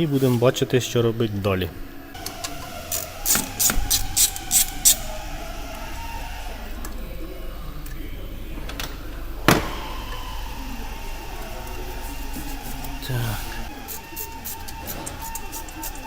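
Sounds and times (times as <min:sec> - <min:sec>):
low hum: 0:01.2 - 0:16.0
hand tools clicking on metal: 0:02.2 - 0:05.1, 0:13.8 - 0:16.0.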